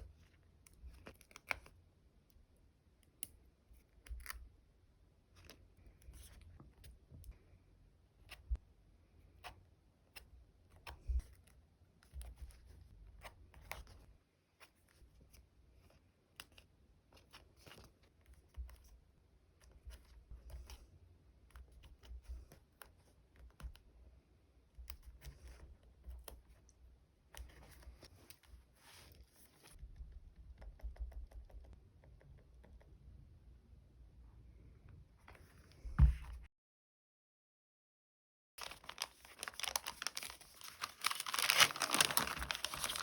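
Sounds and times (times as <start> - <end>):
soft thumps on tabletop: 35.8 - 36.5
paper and plastic rustling: 38.6 - 43.0.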